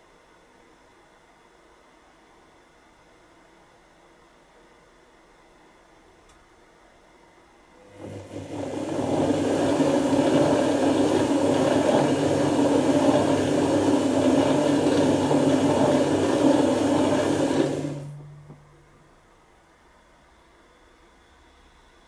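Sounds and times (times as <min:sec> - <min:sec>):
washing machine water sloshing: 0:07.9 - 0:18.2
low motor hum: 0:07.9 - 0:19.0.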